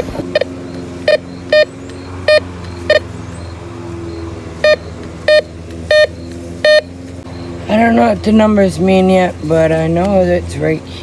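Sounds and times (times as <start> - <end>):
steady low hum: 0.0 - 11.0
metal detector short beeps: 2.3 - 3.0, 4.6 - 6.9.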